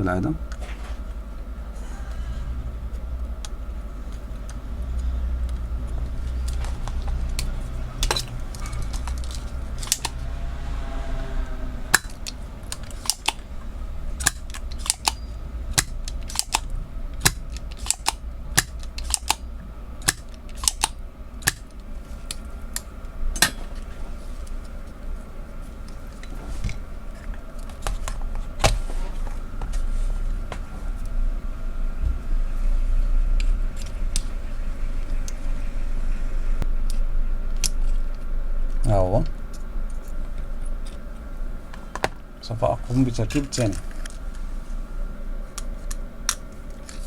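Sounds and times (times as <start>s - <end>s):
steady low hum: 0.0s - 47.0s
metal tools clicking on circuit board: 14.2s - 19.4s.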